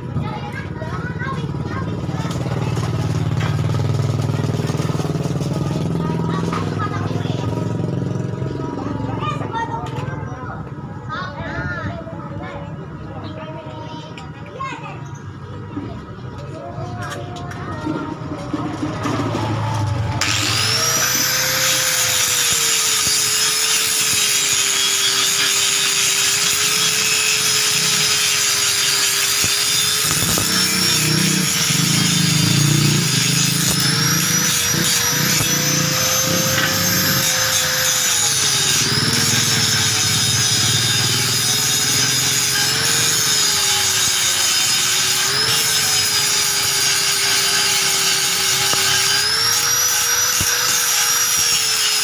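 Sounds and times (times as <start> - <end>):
electric power tool running: 2.2 - 8.5, 18.4 - 52.0
rough rasping grating: 17.8 - 52.0.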